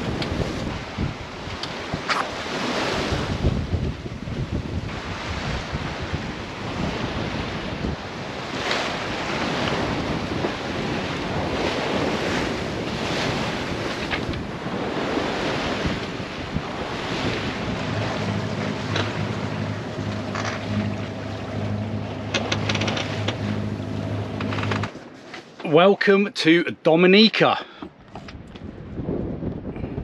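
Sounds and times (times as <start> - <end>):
wind buffeting microphone: 0.0 - 25.0, 27.9 - 30.0
water rushing past hull: 0.0 - 26.7
low engine drone: 16.6 - 25.0.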